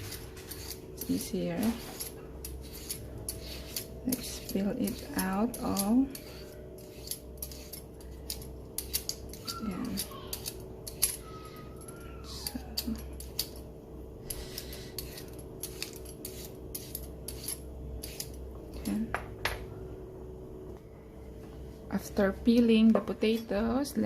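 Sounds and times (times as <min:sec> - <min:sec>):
peeler scraping a potato: 0:00.0 - 0:13.6, 0:14.2 - 0:19.0
steady low hum: 0:00.0 - 0:24.0.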